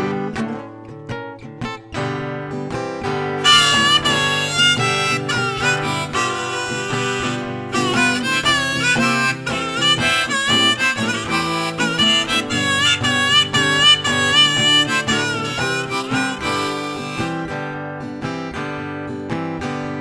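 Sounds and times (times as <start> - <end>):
acoustic guitar accompaniment: 0.0 - 20.0
blues harmonica solo: 3.4 - 18.0.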